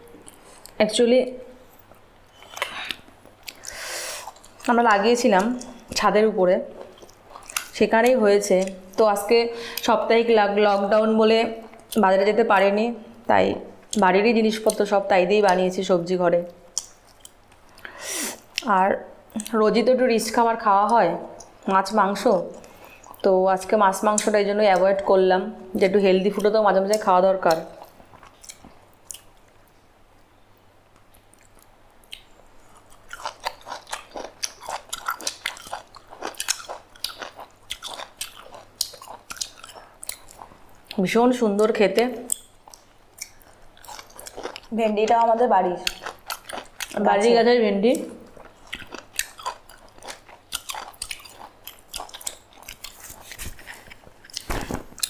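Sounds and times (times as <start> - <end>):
chewing: 6.8 - 7.7, 27.5 - 29.6, 31.0 - 41.0, 42.3 - 44.7, 45.8 - 47.0, 48.2 - 55.0
crisp food crunching: 32.7 - 40.5, 43.2 - 44.7, 45.8 - 47.0, 48.3 - 55.0.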